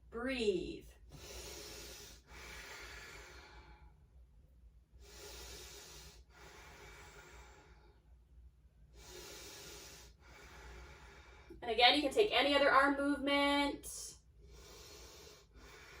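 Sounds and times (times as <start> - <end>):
woman breathing slowly: 1.0 - 4.3, 4.9 - 11.6, 14.2 - 16.0.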